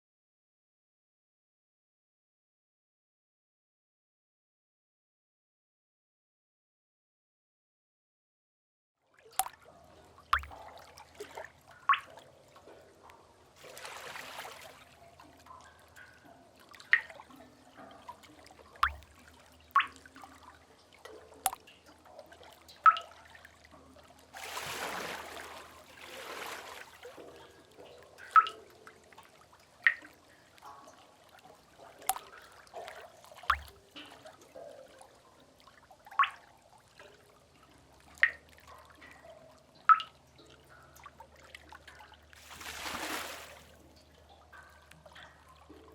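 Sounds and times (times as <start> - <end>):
water drops plinking into pools: 9.2 - 45.9.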